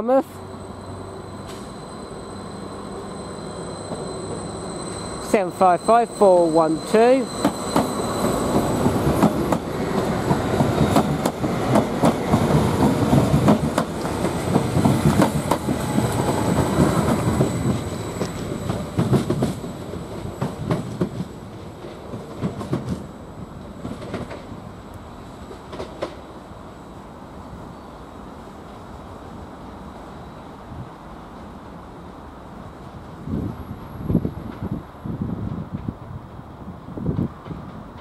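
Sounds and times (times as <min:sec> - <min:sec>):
train running rumble: 0:03.7 - 0:26.2
train wheels clicking over rail joints: 0:06.9 - 0:24.6, 0:25.5 - 0:26.2.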